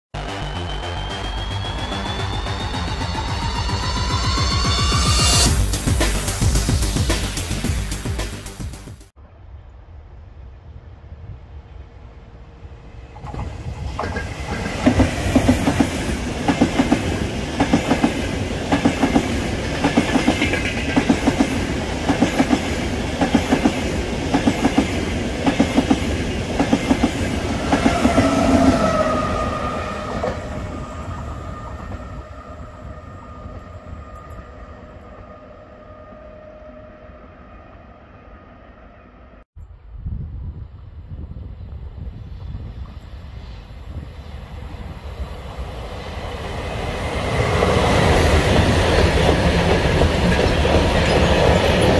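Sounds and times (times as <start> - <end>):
train whine: 0.2 - 8.1, 9.2 - 39.5, 41.3 - 51.9
train wheels clickety-clack: 13.2 - 30.7, 46.3 - 51.9.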